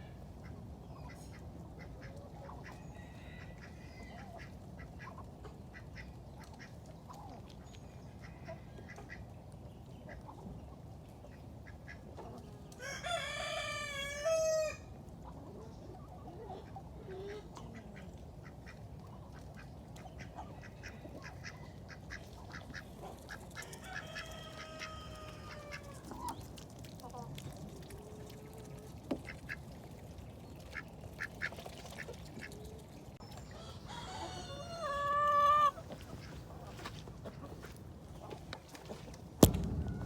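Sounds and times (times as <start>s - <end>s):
ducks and chickens calling: 0.0s - 40.0s
rooster crowing: 12.8s - 14.9s, 23.7s - 25.9s, 33.5s - 35.8s.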